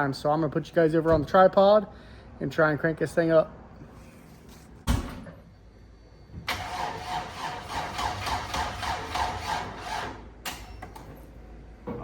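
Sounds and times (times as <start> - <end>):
starter motor cranking engine: 6.5 - 10.3.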